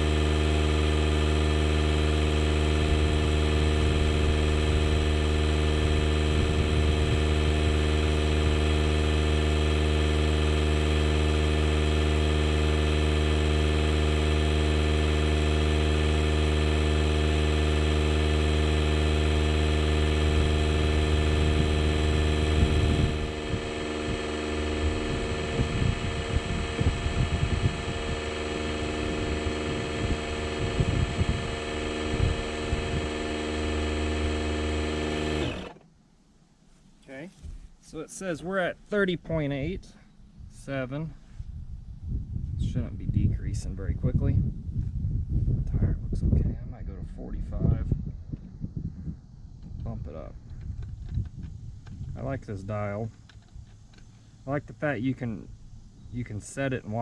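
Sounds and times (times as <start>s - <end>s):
air compressor running: 0.0s - 35.9s.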